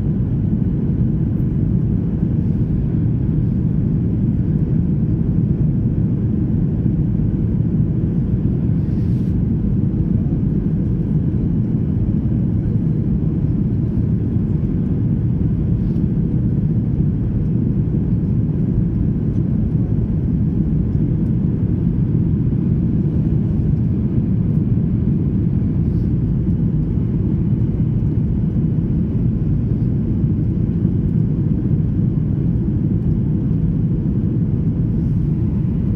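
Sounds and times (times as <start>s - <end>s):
airliner low rumble: 0.0s - 35.9s.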